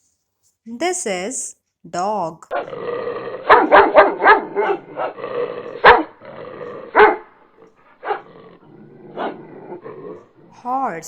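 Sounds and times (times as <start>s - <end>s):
dog barking: 3.4s - 8.4s, 9.1s - 10.3s.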